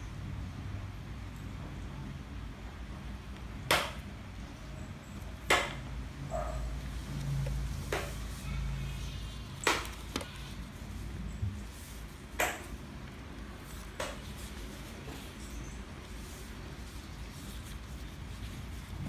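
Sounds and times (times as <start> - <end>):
paper crinkling: 7.0 - 19.0.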